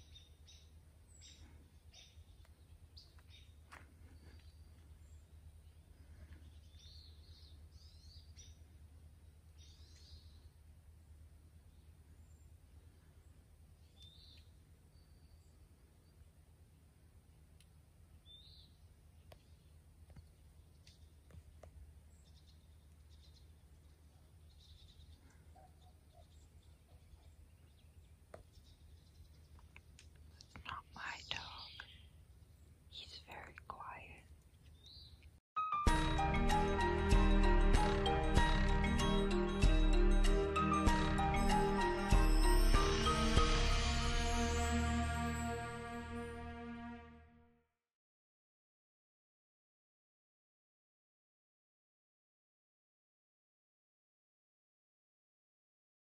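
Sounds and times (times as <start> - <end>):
faint birds chirping: 0.0 - 35.4
faint distant bird calls: 18.2 - 35.4
steady low rumble: 35.9 - 46.9.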